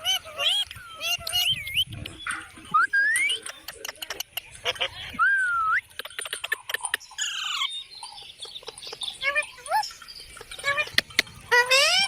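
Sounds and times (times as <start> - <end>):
parrot whistling and squawking: 0.0 - 2.0, 10.6 - 12.0.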